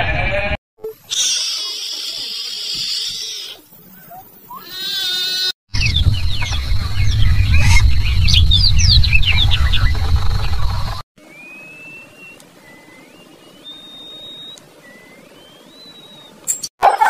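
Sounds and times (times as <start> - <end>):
low rumble: 5.8 - 11.0.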